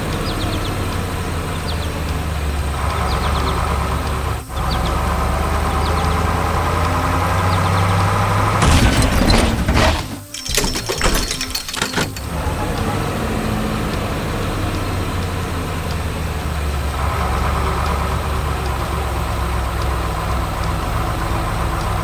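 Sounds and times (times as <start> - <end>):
heavy vehicle engine running: 0.0 - 22.0
loud clatter of impacts: 8.6 - 12.3.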